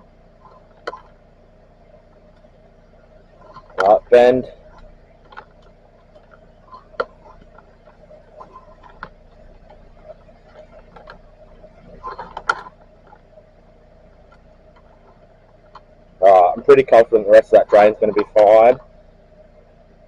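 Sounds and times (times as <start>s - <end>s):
faint steady hum: 0.0s - 20.0s
push rod clicks and creaks: 12.0s - 12.8s.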